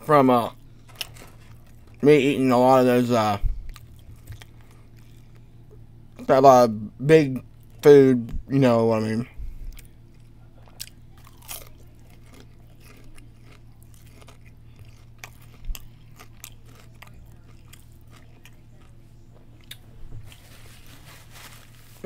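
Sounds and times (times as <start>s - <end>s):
low steady hum: 0.0s - 22.0s
person chewing food: 0.6s - 2.0s, 3.5s - 5.8s, 9.5s - 21.0s.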